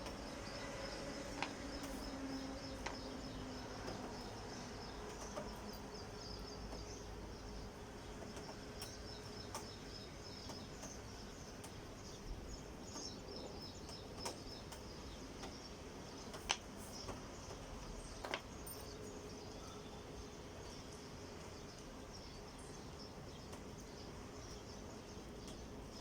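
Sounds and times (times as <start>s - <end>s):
faint high-pitched chirping: 0.0s - 26.0s.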